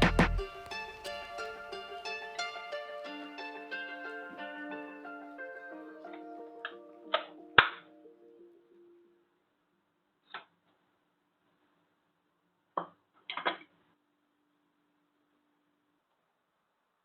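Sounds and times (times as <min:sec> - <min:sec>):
sharp taps: 0:00.0 - 0:00.4
background music: 0:00.0 - 0:09.3.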